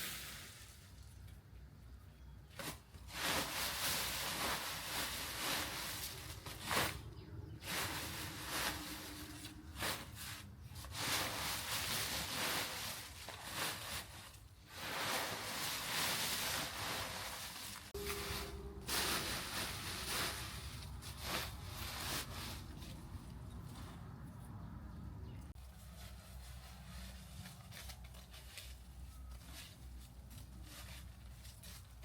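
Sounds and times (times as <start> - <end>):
rustling and rubbing: 2.5 - 24.3, 25.5 - 32.0.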